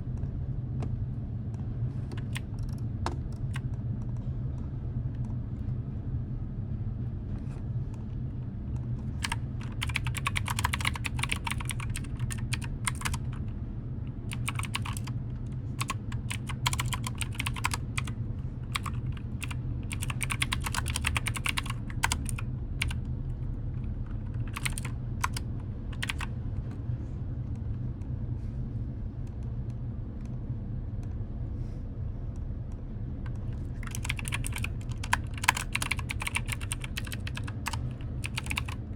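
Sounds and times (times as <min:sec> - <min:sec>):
steady low hum: 0:00.0 - 0:38.9
typing on computer keyboard: 0:02.1 - 0:03.7, 0:09.2 - 0:13.5, 0:14.3 - 0:15.2, 0:15.8 - 0:18.1, 0:18.7 - 0:23.0, 0:24.1 - 0:26.3, 0:33.8 - 0:38.9.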